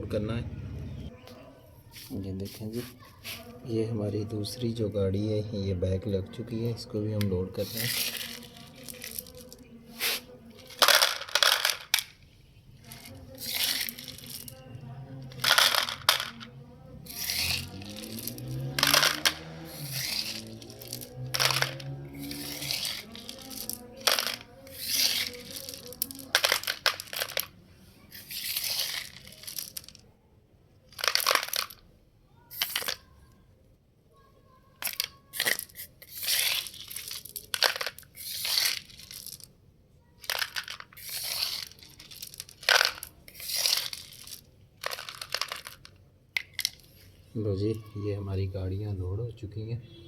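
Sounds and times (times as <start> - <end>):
gravel rattling into plastic bed: 40.2 - 46.8.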